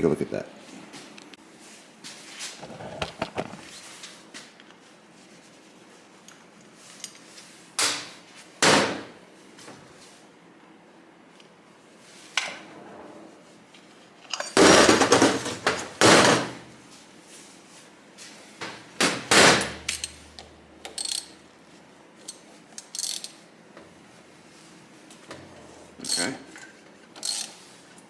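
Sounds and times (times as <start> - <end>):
metal tools clattering on workbench: 14.3 - 15.9.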